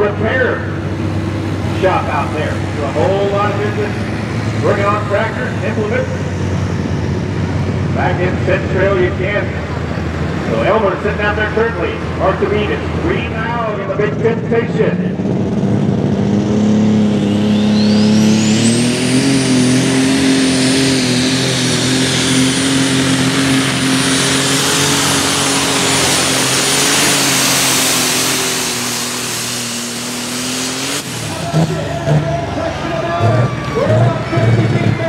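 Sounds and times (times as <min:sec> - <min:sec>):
turbocharger whine: 0:00.0 - 0:35.0
tractor engine under load: 0:15.2 - 0:35.0.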